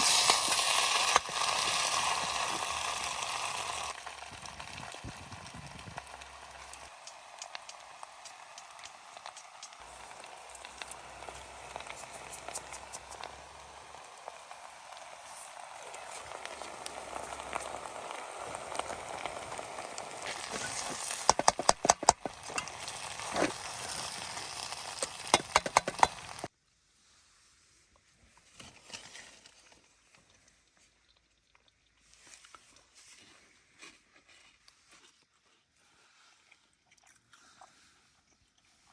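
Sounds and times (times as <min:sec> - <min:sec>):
food sizzling in a pan: 0:00.0 - 0:26.5.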